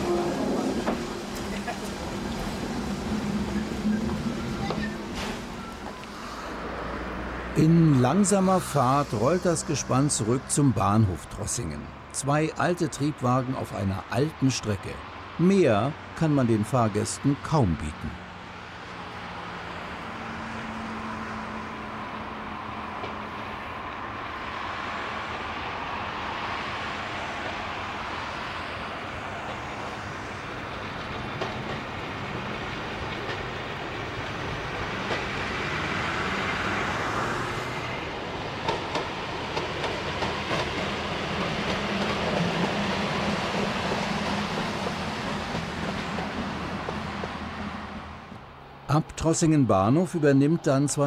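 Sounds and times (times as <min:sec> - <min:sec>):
railcars rolling past: 0:00.0 - 0:51.0
wheels clicking over rail joints: 0:29.4 - 0:35.9, 0:38.5 - 0:47.6.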